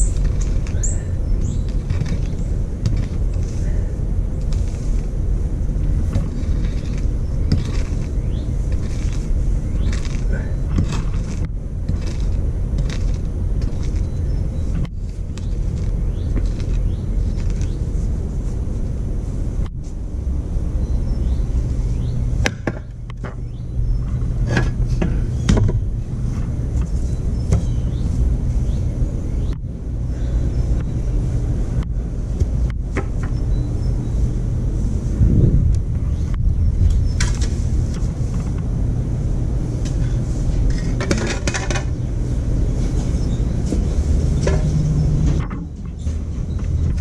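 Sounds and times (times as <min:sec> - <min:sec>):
sharp clicks and knocks: 0:43.7 - 0:47.0.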